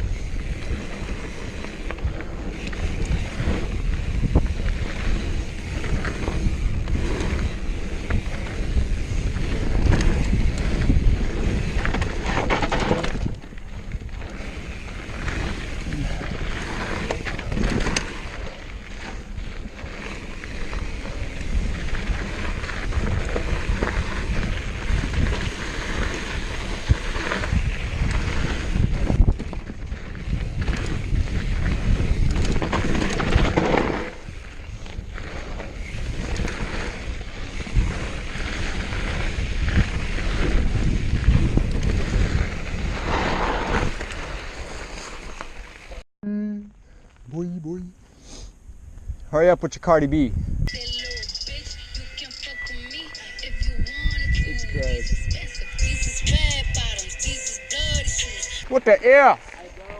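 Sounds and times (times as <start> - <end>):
wind buffeting microphone: 0.0 - 44.9, 50.0 - 50.7
bike knocks and rattles: 5.6 - 14.4.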